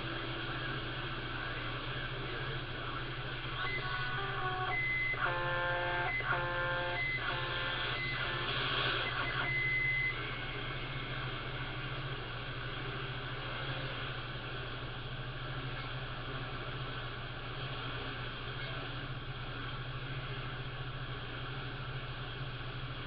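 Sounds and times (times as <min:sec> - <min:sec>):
radio speaker electrical hum: 0:00.0 - 0:23.0
held electronic tones: 0:03.6 - 0:10.4.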